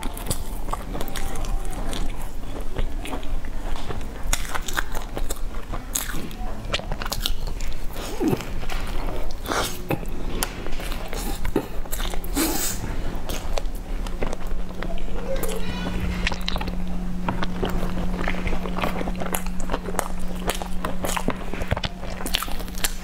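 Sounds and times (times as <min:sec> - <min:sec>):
crunchy biting and chewing: 0:00.0 - 0:23.0.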